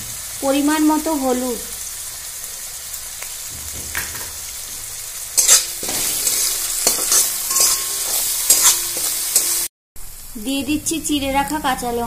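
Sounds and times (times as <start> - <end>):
paste sizzling in oil: 0.0 - 10.5
spatula scraping a pan: 5.4 - 9.7.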